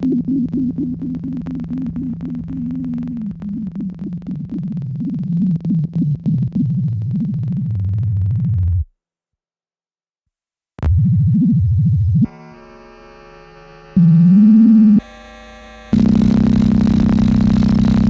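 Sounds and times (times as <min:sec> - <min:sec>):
crackling glitch clicks: 0:00.0 - 0:05.4, 0:15.8 - 0:18.0
low wobbling synth drone: 0:12.6 - 0:18.0.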